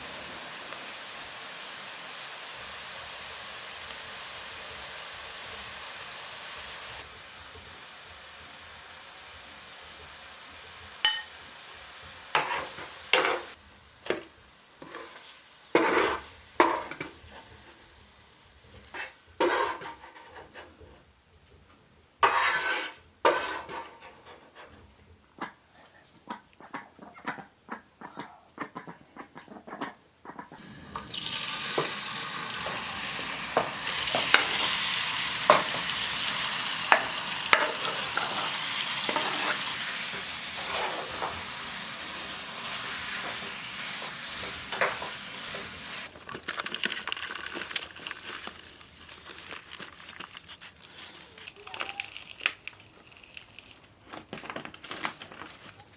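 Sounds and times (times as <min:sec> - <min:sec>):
food sizzling in a frying pan: 0:00.0 - 0:20.4, 0:30.6 - 0:46.2
utensil stirring in pan: 0:11.0 - 0:11.4, 0:12.0 - 0:18.0, 0:18.7 - 0:20.7, 0:22.2 - 0:24.7, 0:31.2 - 0:54.0
utensils clinking and scraping: 0:11.1 - 0:11.3.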